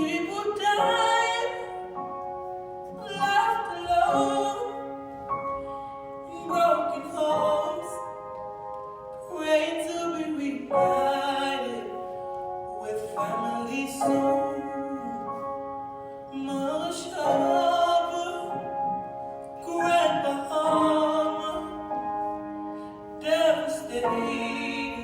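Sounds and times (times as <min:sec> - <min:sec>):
person singing long notes with vibrato: 0:00.0 - 0:02.2, 0:02.8 - 0:08.4, 0:19.4 - 0:25.0.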